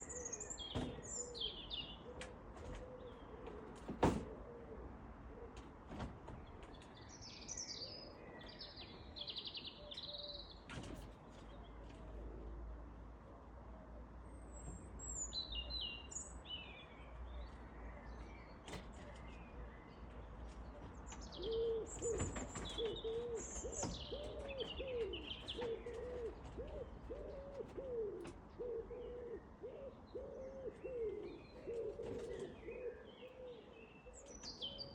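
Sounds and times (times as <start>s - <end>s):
songbirds chirping and singing: 0.0s - 4.2s, 6.3s - 12.9s, 13.9s - 34.9s
pigeon cooing: 1.2s - 5.6s, 21.4s - 34.9s.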